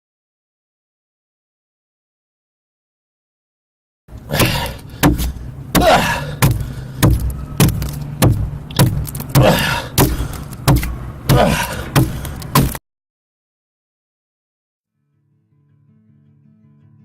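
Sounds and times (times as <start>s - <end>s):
chopping strikes into wood: 4.3s - 12.8s.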